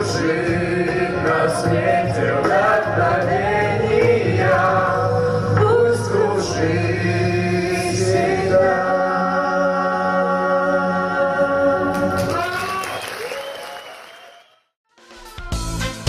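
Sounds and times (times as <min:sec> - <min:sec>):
male choir singing: 0:00.0 - 0:12.4
backing music: 0:00.0 - 0:12.7, 0:14.9 - 0:16.0.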